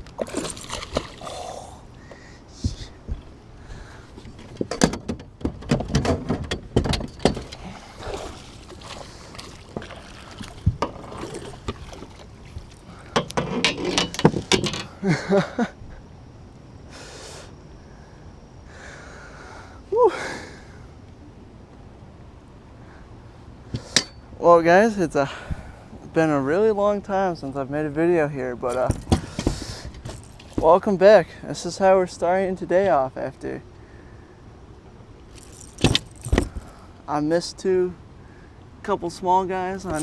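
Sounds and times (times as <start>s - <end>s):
water splashing: 0.2s - 1.6s, 7.4s - 13.1s.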